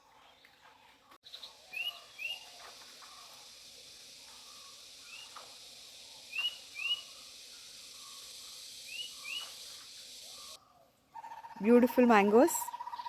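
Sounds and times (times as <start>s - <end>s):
bird chirping: 1.2s - 13.0s
high background hiss: 1.3s - 10.6s.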